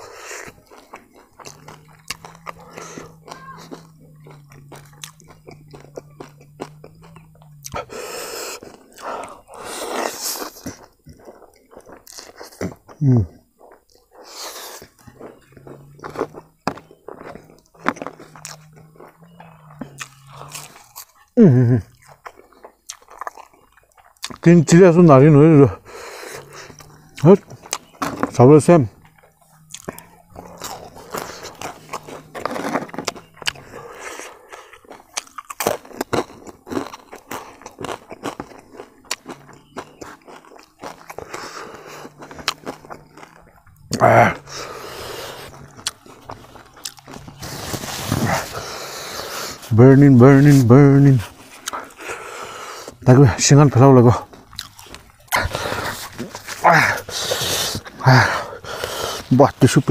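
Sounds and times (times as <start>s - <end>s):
chewing and crunching: 0.0s - 59.9s
low hum: 0.6s - 9.6s
person exclaiming: 3.2s - 3.8s, 56.6s - 57.0s.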